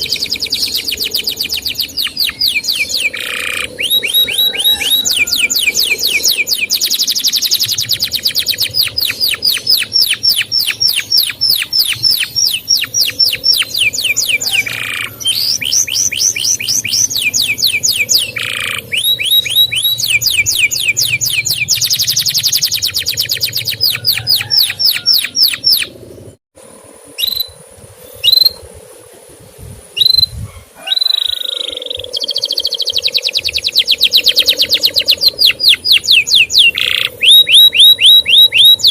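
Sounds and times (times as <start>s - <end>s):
canary singing rapid trill: 0.0s - 26.4s, 30.0s - 38.9s.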